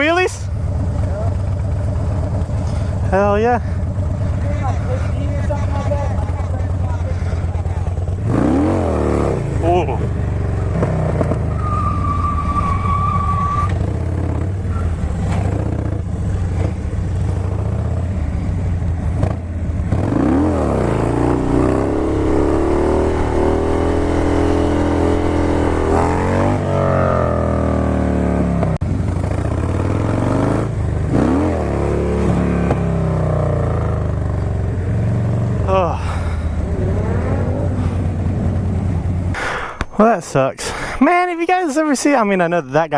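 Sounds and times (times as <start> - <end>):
motorcycle engines running: 0.0 - 11.6, 13.2 - 42.9
engine revving up and down: 8.0 - 11.7, 19.2 - 34.1, 36.4 - 38.7.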